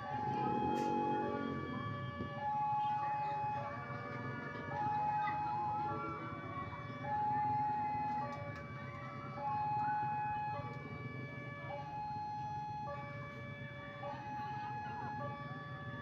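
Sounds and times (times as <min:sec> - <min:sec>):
two-tone electronic alarm: 0:00.0 - 0:03.7.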